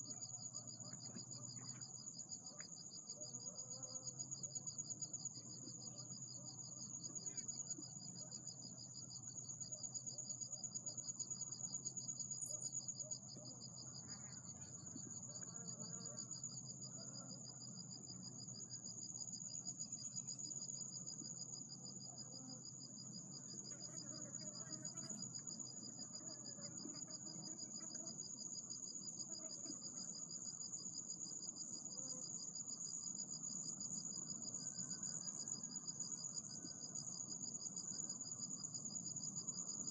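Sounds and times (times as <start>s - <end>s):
insects pulsing trill: 0.0s - 39.9s.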